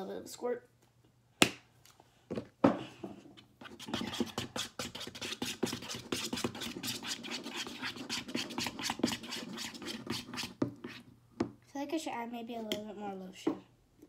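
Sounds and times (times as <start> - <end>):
slime stirred and scraped in bowl: 2.8 - 11.2.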